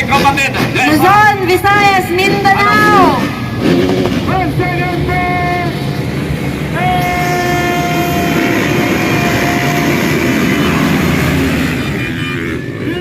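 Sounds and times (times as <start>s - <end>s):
motocross bikes revving: 0.0s - 13.0s.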